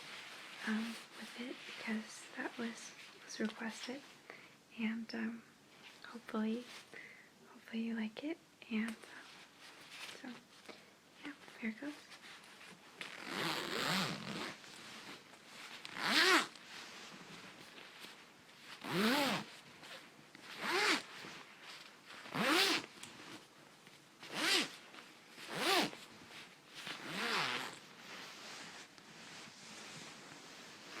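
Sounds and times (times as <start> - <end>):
zipper being zipped: 13.0 - 15.2, 15.8 - 16.6, 18.7 - 19.6, 20.5 - 21.4, 22.2 - 23.4, 24.2 - 24.8, 25.4 - 26.1, 26.7 - 31.0.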